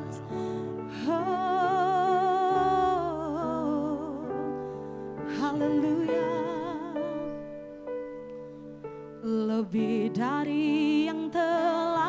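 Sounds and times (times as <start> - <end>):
person singing with vibrato: 0.0 - 7.6.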